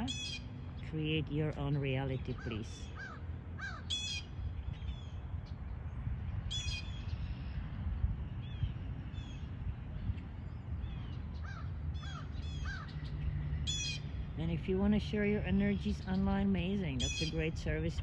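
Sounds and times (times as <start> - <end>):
wild birds calling: 0.0 - 0.9, 1.6 - 5.2, 10.8 - 14.4, 17.0 - 17.4
steady low rumble: 0.0 - 18.0.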